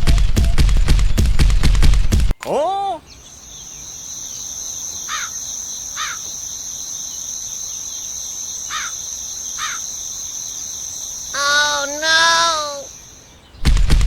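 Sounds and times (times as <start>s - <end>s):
longer bird calls: 0.0s - 1.7s, 2.3s - 13.7s
bird chirps: 2.4s - 13.6s
high insect drone: 3.3s - 13.3s.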